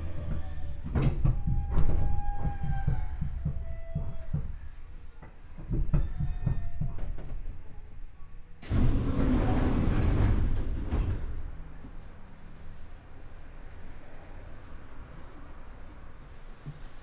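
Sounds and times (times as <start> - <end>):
train wheels knocking over rail joints: 0.1 - 4.7, 8.6 - 11.6.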